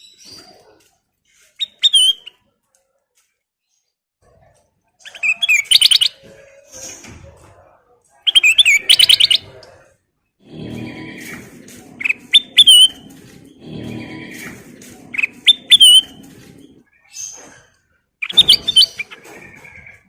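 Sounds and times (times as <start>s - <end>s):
bird singing whistled notes: 12.0s - 13.1s, 15.2s - 16.2s.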